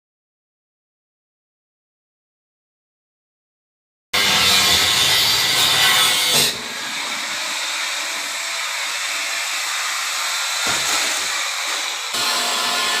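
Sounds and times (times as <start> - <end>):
saw cutting through wood: 4.2 - 13.0.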